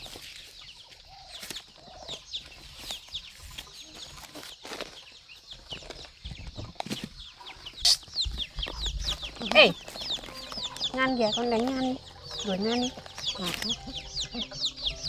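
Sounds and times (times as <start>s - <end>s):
chickens clucking: 6.4s - 15.0s.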